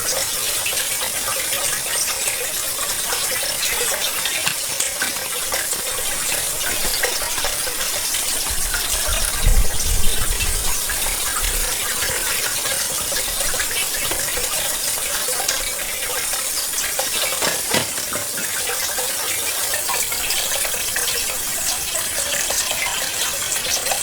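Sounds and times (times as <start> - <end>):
pond water sloshing and trickling: 0.1 - 24.0
small clicks and splashes: 2.5 - 9.3, 11.8 - 19.1.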